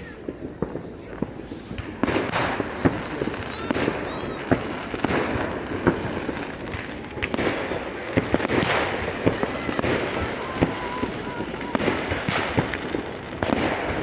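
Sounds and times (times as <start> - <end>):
firework crackling: 0.0 - 14.0
firework bangs and cracks: 0.1 - 14.0
rising rocket whistles: 3.3 - 5.5, 7.6 - 13.3.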